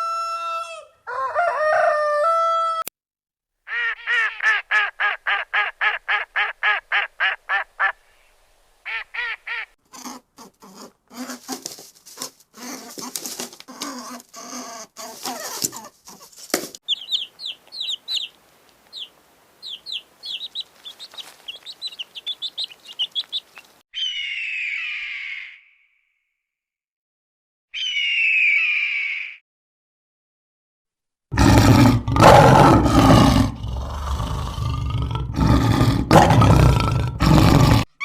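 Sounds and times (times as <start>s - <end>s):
wings flapping: 15.2s - 23.8s
rapid repeated bird calls: 15.2s - 25.8s
quick high bird chirps: 16.8s - 24.8s
harsh bird calls: 16.8s - 25.9s, 27.7s - 29.4s.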